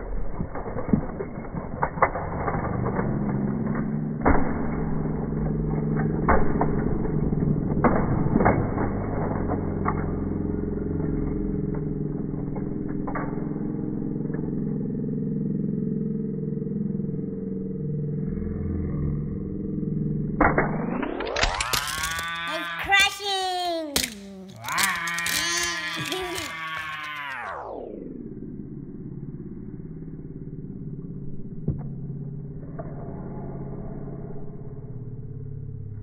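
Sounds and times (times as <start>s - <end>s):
low steady rumble: 0.0s - 21.2s, 27.8s - 36.0s
toy truck crashing knocks: 21.4s - 22.4s.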